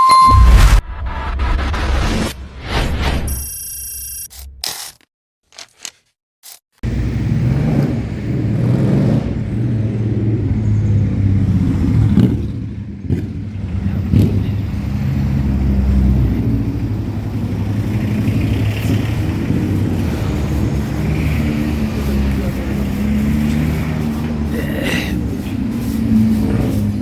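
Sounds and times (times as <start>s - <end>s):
vehicle engine running: 6.8s - 27.0s.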